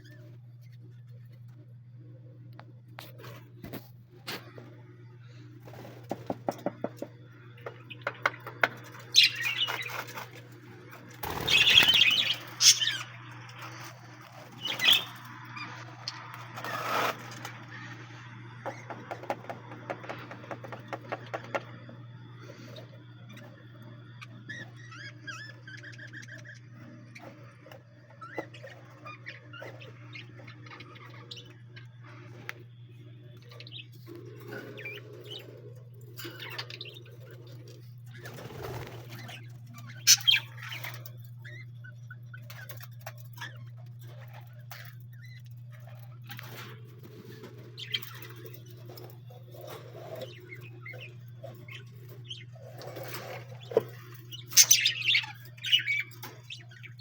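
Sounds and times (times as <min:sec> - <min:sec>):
low hum: 0:00.0 - 0:57.0
birds chirping and calling: 0:02.6 - 0:57.0
doves cooing: 0:33.5 - 0:57.0.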